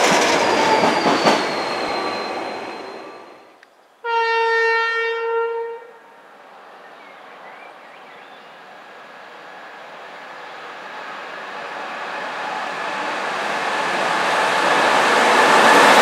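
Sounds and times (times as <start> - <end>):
locomotive horn blast: 4.0 - 6.1.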